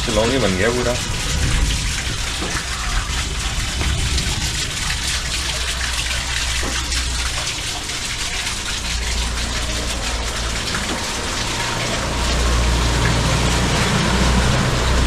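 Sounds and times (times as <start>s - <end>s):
heavy rain pouring: 0.0s - 15.0s
low rumble: 1.0s - 6.5s.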